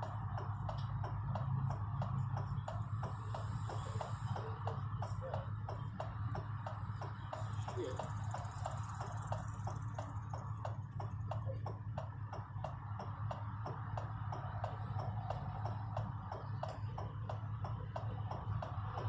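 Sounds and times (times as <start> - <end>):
idling engine hum: 0.0 - 19.0.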